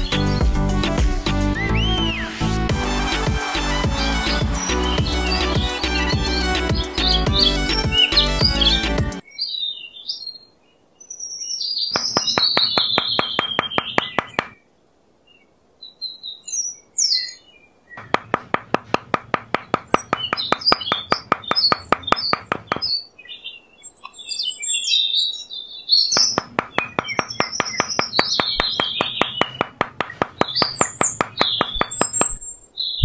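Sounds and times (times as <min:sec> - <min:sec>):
birds chirping: 0:00.0 - 0:33.0
metal hammer tapping wooden stick: 0:18.0 - 0:22.8, 0:26.2 - 0:32.4.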